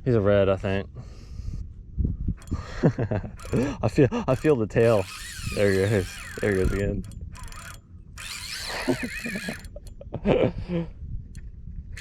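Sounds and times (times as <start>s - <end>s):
fishing reel drag buzzing: 2.4s - 10.0s.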